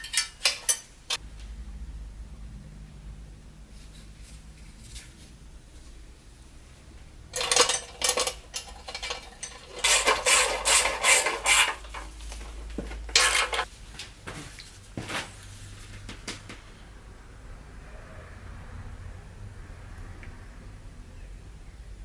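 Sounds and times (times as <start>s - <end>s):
small metal parts clinking: 0.0s - 1.2s, 7.3s - 12.2s, 13.0s - 13.7s.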